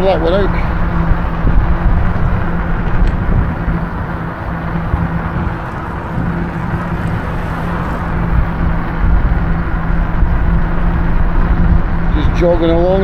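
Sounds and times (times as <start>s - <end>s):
bike tyre noise on road: 0.0s - 13.0s
steady low hum: 0.0s - 13.0s
wind rushing over microphone: 0.0s - 13.0s.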